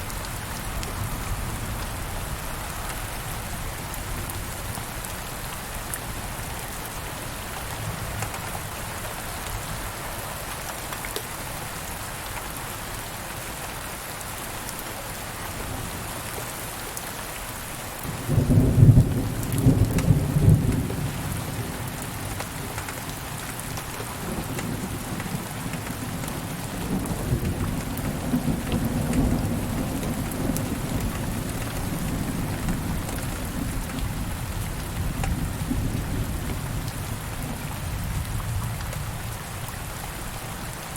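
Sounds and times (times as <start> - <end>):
steady rain: 0.0 - 40.9
thunder clap and rumble: 26.8 - 39.2.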